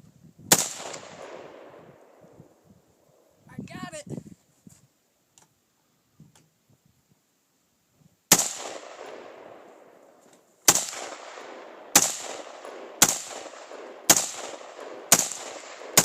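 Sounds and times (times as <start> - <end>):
rifle shots: 0.5 - 1.9, 8.3 - 10.0, 10.7 - 16.0.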